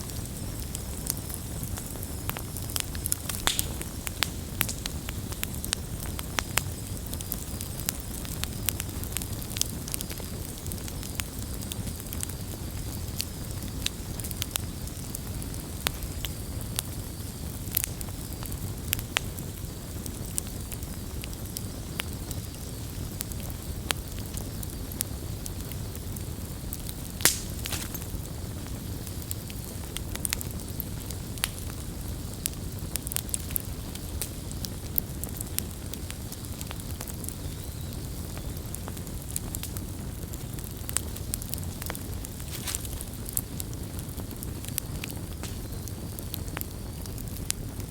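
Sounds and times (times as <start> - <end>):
campfire rumble and hiss: 0.0 - 47.9
wood crackling and popping: 0.0 - 47.9.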